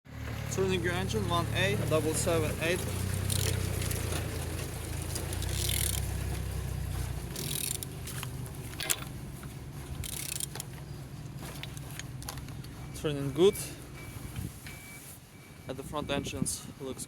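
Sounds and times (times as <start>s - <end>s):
wrench turning engine metallic scraping: 3.1s - 4.3s, 5.3s - 6.2s, 7.3s - 8.0s, 9.9s - 11.0s.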